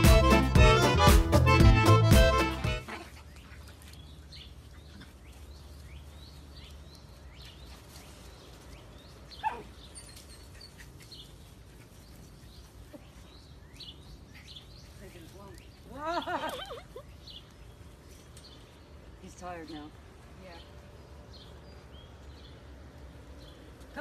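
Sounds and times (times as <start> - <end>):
small birds chirping: 2.4 - 24.0
dog yelping: 9.4 - 11.0.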